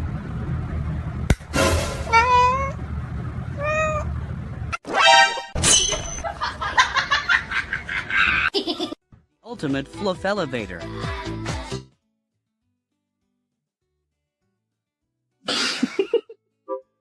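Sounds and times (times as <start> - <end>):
cat meowing: 2.1 - 2.8, 3.6 - 4.1
background music: 9.4 - 11.9.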